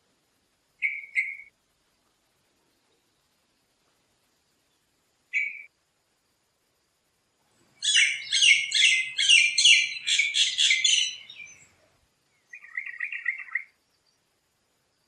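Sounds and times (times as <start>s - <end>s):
bird calling rapid notes: 7.8s - 11.5s.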